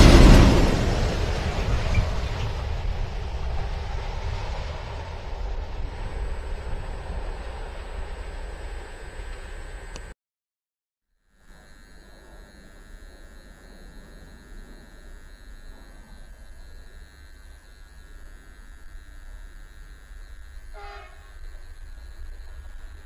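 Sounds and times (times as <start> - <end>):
freight train rumbling by: 0.0 - 8.3
constant high tone: 5.6 - 10.2, 11.2 - 23.0
train horn blast: 20.6 - 21.4.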